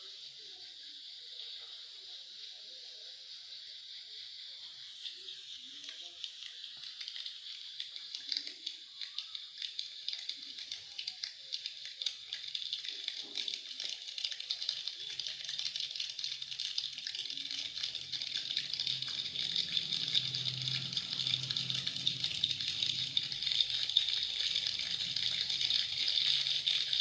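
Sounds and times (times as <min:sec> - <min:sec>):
fingertip tapping imitating rain: 0:16.7 - 0:27.0.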